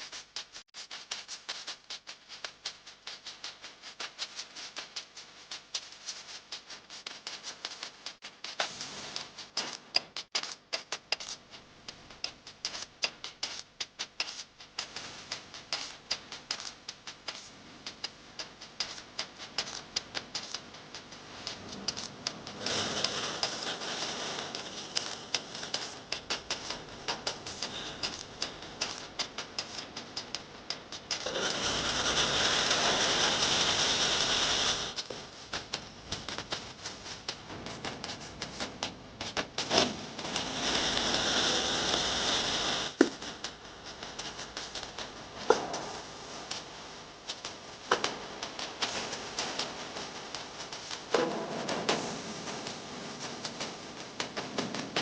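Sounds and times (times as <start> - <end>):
frying oil crackling and popping: 0.2 - 55.0
batter sizzling in oil: 21.4 - 36.6, 38.6 - 45.1.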